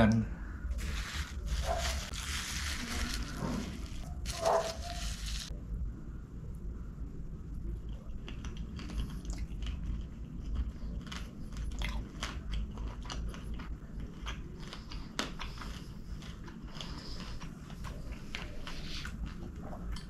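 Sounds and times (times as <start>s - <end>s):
chewing and biting: 7.8s - 20.0s.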